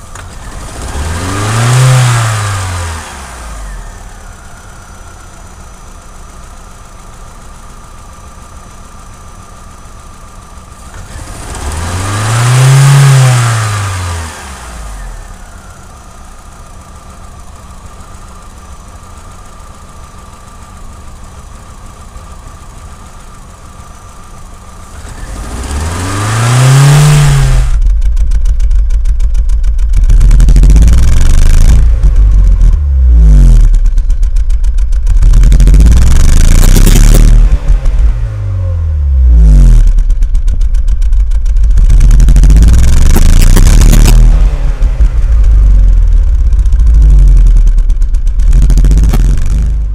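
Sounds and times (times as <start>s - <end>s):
car engine idling unevenly: 0.0s - 11.8s, 13.9s - 49.9s
loud uneven low rumble: 27.1s - 49.9s.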